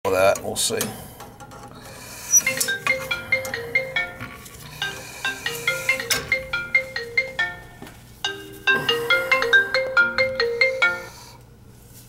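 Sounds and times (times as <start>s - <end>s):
marimba-style phone ringtone: 2.3s - 11.4s.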